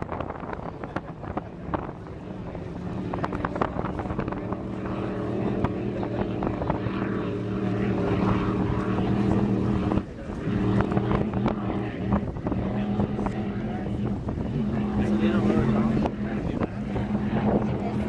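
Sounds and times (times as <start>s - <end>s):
powerboat engine running: 0.0s - 18.0s.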